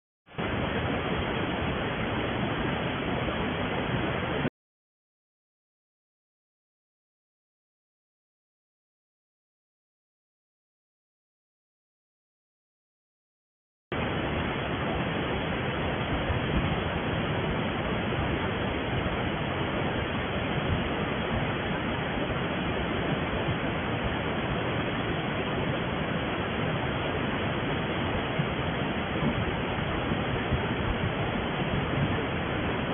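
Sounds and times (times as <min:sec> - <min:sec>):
waterfall rushing: 0:00.4 - 0:04.5, 0:14.0 - 0:32.9.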